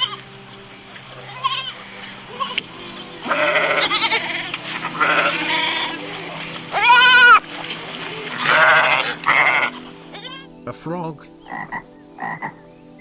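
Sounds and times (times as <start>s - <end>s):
goat bleating: 0.0s - 0.2s, 1.2s - 7.4s, 8.1s - 10.5s.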